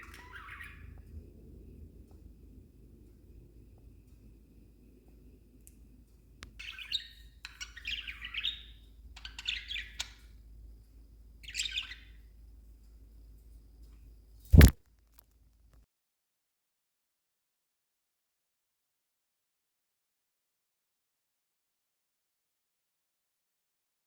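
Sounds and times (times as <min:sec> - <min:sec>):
budgerigar chirping: 0:00.2 - 0:00.8, 0:06.6 - 0:10.1, 0:11.4 - 0:12.1
loud short knock: 0:14.6 - 0:14.8.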